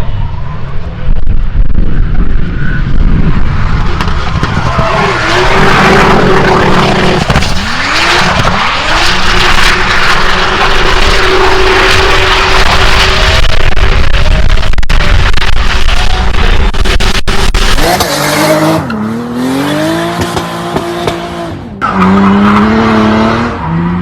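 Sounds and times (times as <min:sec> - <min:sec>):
car engine at high revs: 0:00.2 - 0:24.0
tyres squealing and skidding: 0:01.8 - 0:13.5, 0:17.8 - 0:24.0.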